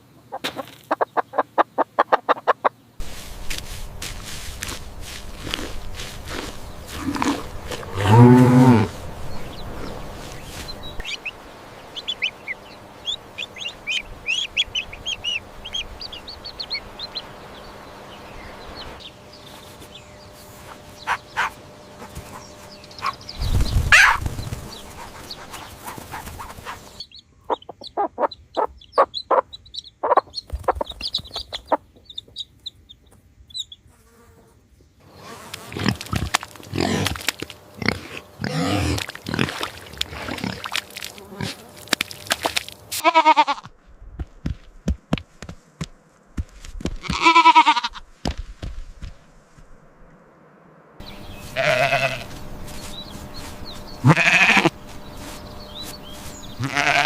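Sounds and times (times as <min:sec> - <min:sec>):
hens clucking: 0:00.0 - 0:03.9, 0:18.8 - 0:33.1, 0:51.1 - 0:57.0
low drawn-out animal call: 0:06.8 - 0:09.2
high chirps of chicks: 0:09.2 - 0:34.0, 0:51.0 - 0:57.0.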